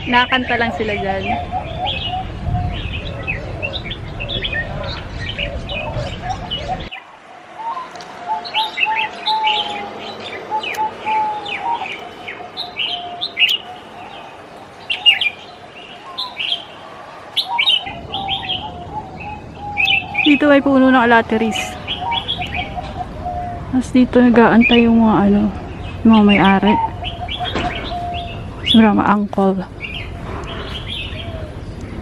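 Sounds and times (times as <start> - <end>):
songbirds chirping and trilling: 0.0 - 32.0
low background rumble: 16.8 - 32.0.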